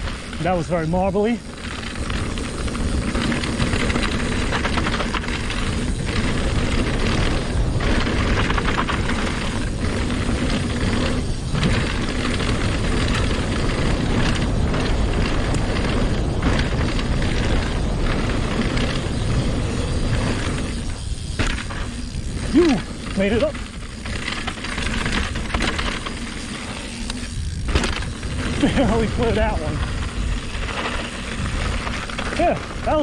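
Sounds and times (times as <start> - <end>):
bike rattling on rocks: 0.0 - 33.0
wind buffeting microphone: 0.0 - 33.0.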